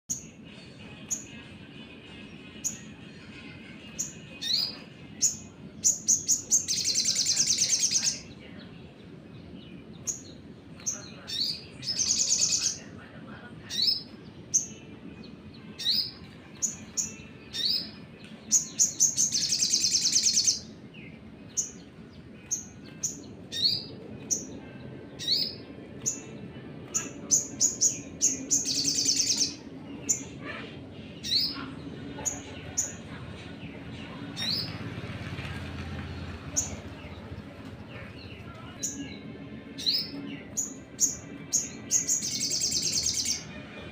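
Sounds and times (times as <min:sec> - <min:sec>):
sunbird high chirps: 0:03.9 - 0:08.3, 0:15.6 - 0:20.8, 0:26.9 - 0:30.3.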